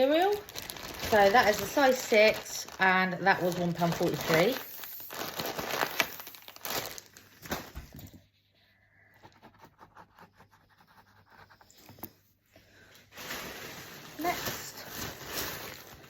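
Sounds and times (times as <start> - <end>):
plastic packaging rustling: 0.0 - 8.1, 12.8 - 16.0.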